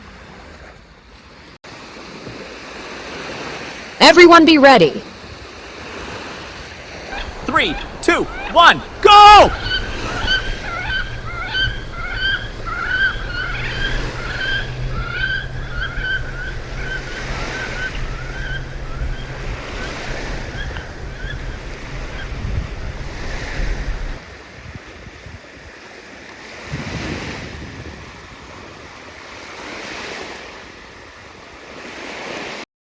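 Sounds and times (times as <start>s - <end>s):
surf washing on beach: 5.1s - 32.6s
ducks calling: 7.1s - 24.2s
wind buffeting microphone: 7.1s - 25.7s, 26.7s - 29.0s.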